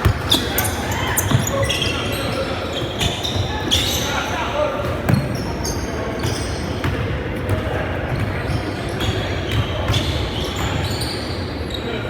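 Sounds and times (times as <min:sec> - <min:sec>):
basketball bouncing on court: 0:00.0 - 0:02.0, 0:04.8 - 0:10.8
gym background noise: 0:00.0 - 0:12.0.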